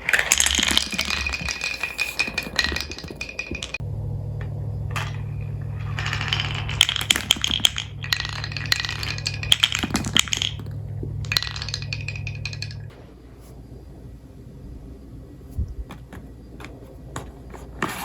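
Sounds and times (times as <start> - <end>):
marbles clattering down wooden run: 0.0 - 3.8, 4.4 - 12.9
steady low hum: 0.0 - 18.0.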